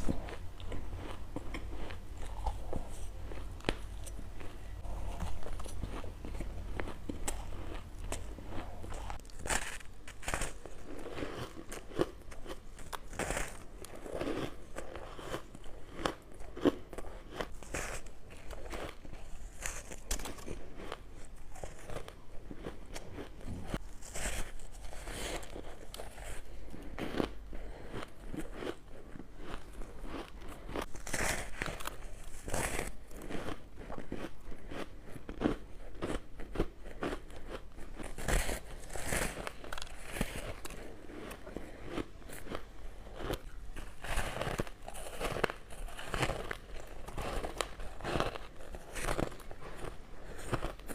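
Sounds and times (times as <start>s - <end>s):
ice crunching being chewed: 0.0s - 50.9s.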